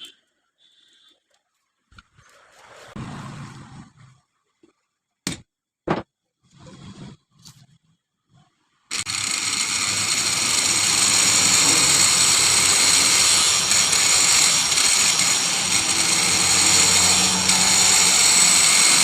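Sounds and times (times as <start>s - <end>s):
mixer grinder motor running: 8.9s - 19.0s.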